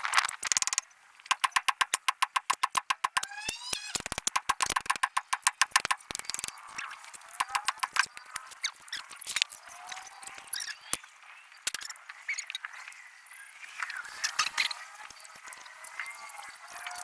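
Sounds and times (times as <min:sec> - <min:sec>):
fast metallic clicks: 0:00.4 - 0:06.6, 0:07.3 - 0:08.2
hand tool clicks and knocks: 0:00.5 - 0:03.3, 0:04.0 - 0:06.5, 0:07.4 - 0:08.1.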